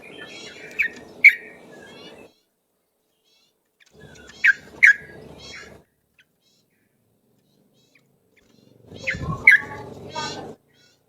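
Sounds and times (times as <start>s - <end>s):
bulbul calling: 0.0s - 2.5s, 3.3s - 11.0s.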